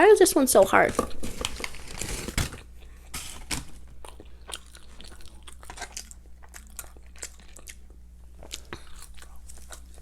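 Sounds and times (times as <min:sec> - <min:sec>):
chewing crispy fried food: 0:02.6 - 0:10.0.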